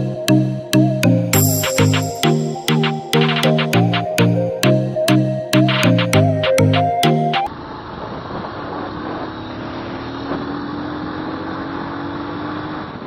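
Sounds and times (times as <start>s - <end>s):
electronic music: 0.0s - 7.5s
road noise: 7.5s - 13.0s.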